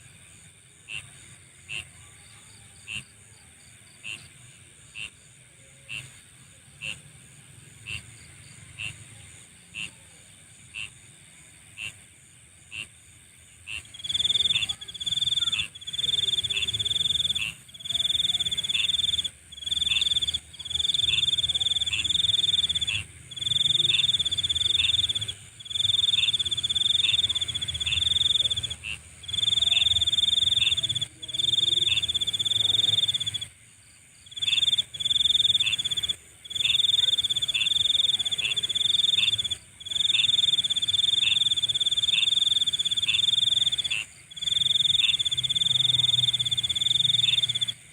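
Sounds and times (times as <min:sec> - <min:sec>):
insect chirping: 0:00.0 - 0:47.9
high-pitched insect trill: 0:13.8 - 0:47.8.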